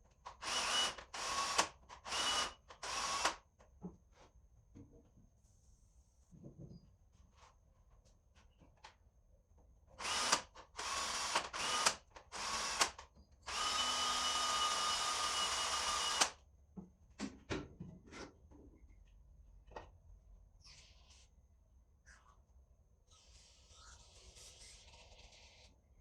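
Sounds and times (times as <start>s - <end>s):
power drill whining: 0.4s - 3.4s, 10.0s - 16.4s.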